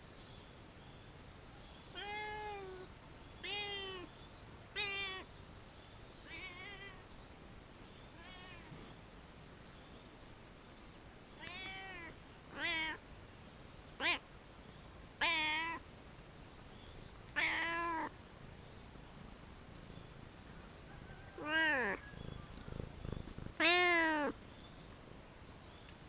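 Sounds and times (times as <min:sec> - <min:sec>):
cat meowing: 0:01.9 - 0:02.8, 0:03.4 - 0:04.1, 0:06.2 - 0:07.0, 0:08.2 - 0:08.8, 0:11.4 - 0:13.0, 0:14.0 - 0:14.2, 0:15.2 - 0:15.8, 0:17.3 - 0:18.1, 0:21.4 - 0:24.4.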